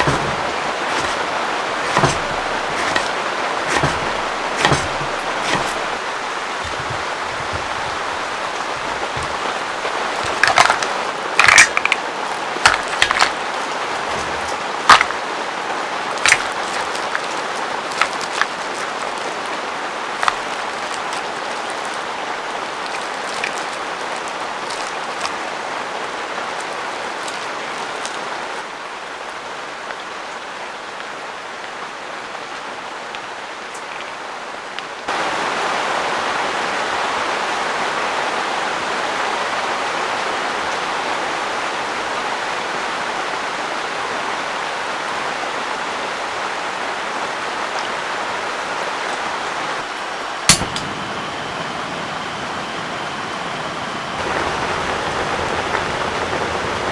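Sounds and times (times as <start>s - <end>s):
heavy rain pouring: 0.0s - 28.4s, 49.6s - 56.9s
sharp click: 50.5s - 51.0s.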